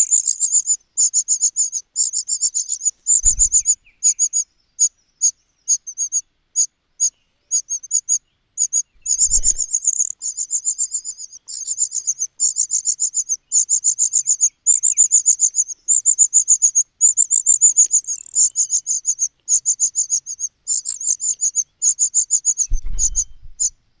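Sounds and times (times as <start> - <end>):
nestlings cheeping: 2.6 - 4.4, 8.7 - 15.0, 16.6 - 23.7.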